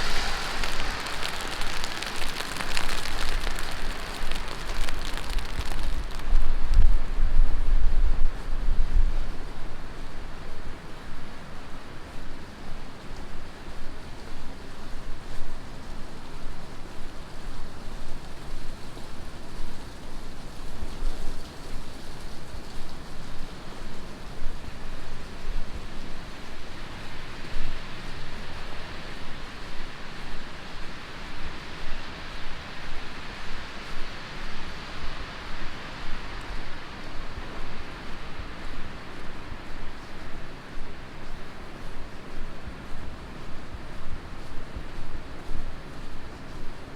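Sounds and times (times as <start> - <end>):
heavy rain on a street: 0.0 - 46.9.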